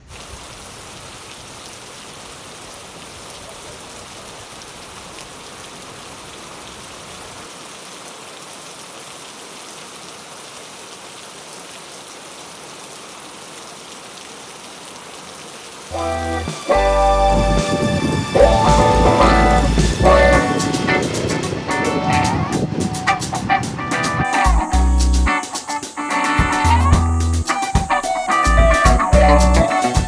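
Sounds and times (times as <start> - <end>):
steady rain: 0.0 - 30.0
low rumble: 18.4 - 20.5.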